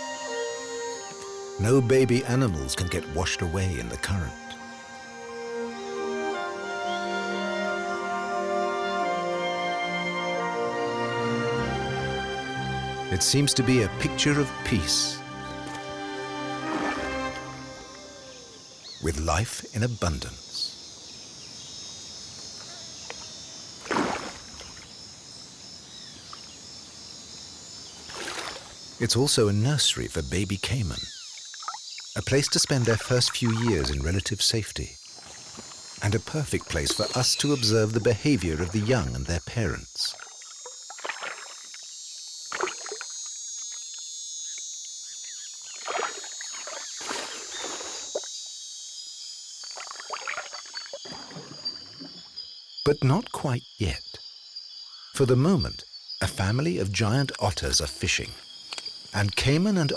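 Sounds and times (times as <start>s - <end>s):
insects chirping chorus: 0.0s - 59.9s
water splashing: 13.1s - 19.0s, 23.0s - 25.2s, 27.6s - 29.4s, 32.5s - 34.2s, 35.1s - 39.1s, 40.1s - 41.8s, 42.5s - 43.2s, 45.7s - 48.3s, 49.6s - 52.4s.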